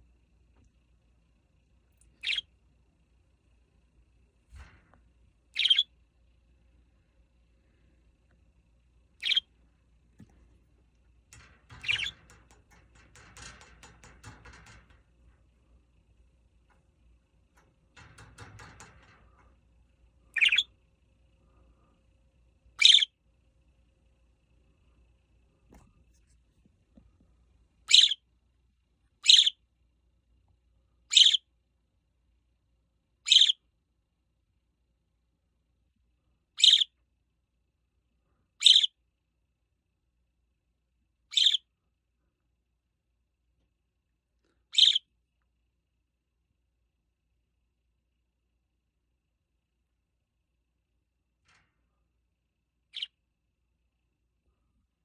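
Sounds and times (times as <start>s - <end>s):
budgerigar chirps: 2.2s - 2.4s, 5.6s - 5.8s, 9.2s - 9.4s, 20.4s - 20.7s, 22.8s - 23.1s, 27.9s - 28.2s, 29.2s - 29.5s, 31.1s - 31.4s, 33.3s - 33.6s, 36.6s - 36.9s, 38.6s - 38.9s, 41.3s - 41.6s, 44.7s - 45.0s.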